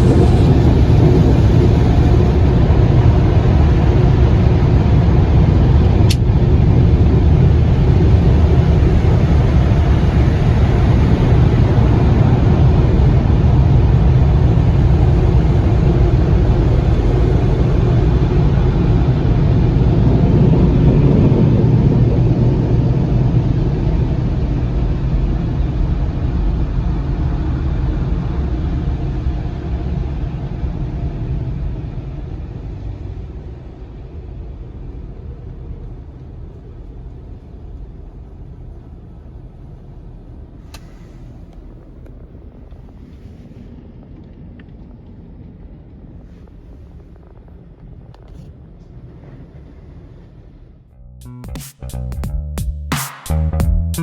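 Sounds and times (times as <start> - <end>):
car wash machinery rumbling: 0.0 - 24.0.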